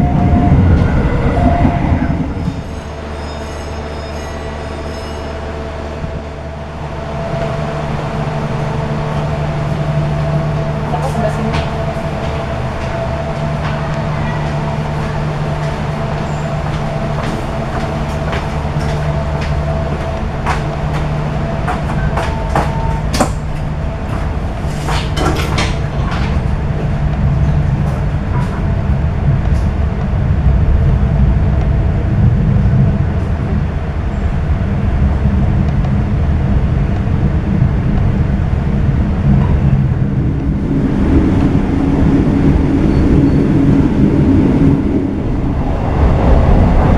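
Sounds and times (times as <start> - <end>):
train wheels rumbling: 0.0 - 46.9
train clicks and rattles: 10.1 - 33.7.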